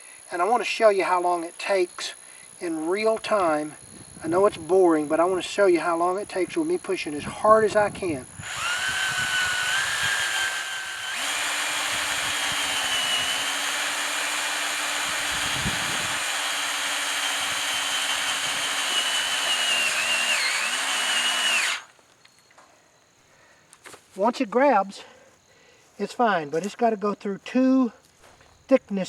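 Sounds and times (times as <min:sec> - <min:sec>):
power drill driving screw into metal: 0:08.4 - 0:21.9.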